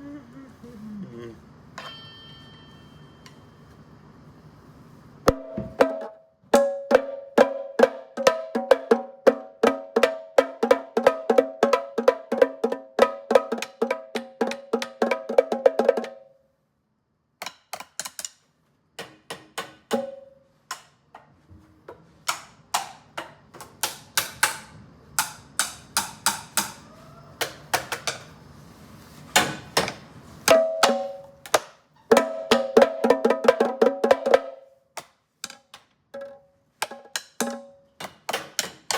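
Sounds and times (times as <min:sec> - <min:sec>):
ringing strikes on household objects: 0:01.8 - 0:03.7, 0:05.3 - 0:15.0, 0:19.0 - 0:20.3, 0:30.5 - 0:34.6, 0:35.6 - 0:38.9.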